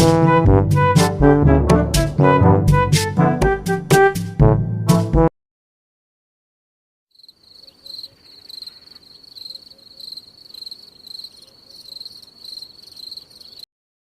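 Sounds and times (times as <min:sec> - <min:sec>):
crickets chirping: 0:07.1 - 0:13.7.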